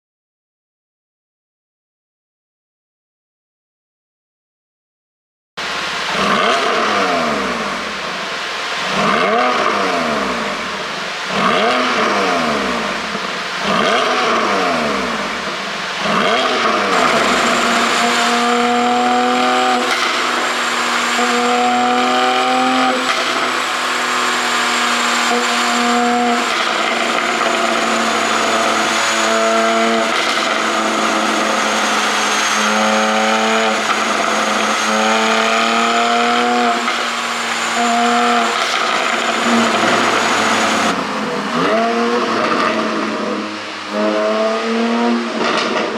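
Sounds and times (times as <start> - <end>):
sports car engine revving: 5.6 - 45.9.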